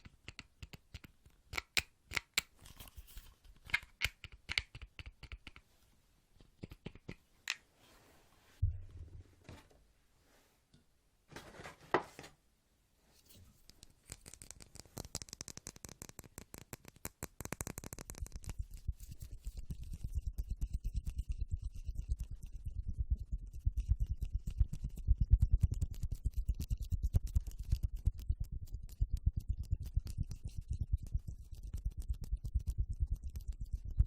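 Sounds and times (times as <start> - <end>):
low thump: 8.6 - 9.3
fast tapping near microphone: 14.2 - 34.0.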